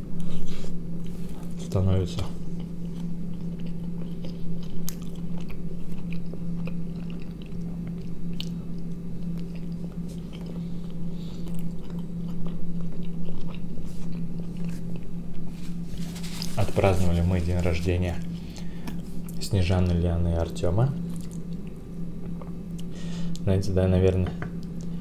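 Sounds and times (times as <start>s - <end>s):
steady low hum: 0.0s - 25.0s
man chewing food: 2.4s - 16.6s, 21.0s - 23.4s.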